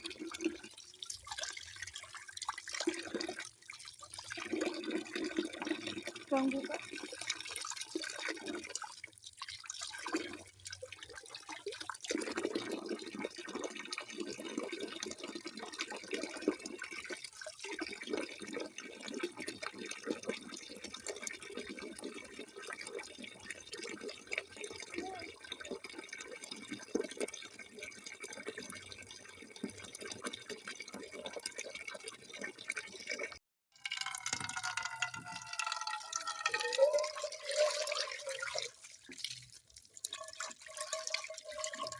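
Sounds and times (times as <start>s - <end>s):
tap water splashing into a basin: 33.8s - 41.9s.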